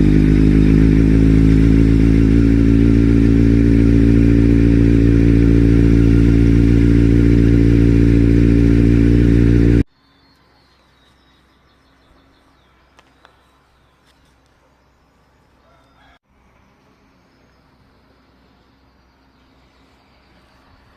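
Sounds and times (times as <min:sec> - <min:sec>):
motorcycle engine idling: 0:00.0 - 0:09.9.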